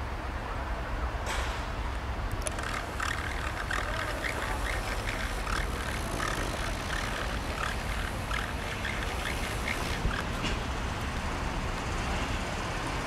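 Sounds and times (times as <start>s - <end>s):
short squeaks: 2.4s - 10.7s
diesel train rumble: 5.4s - 13.0s.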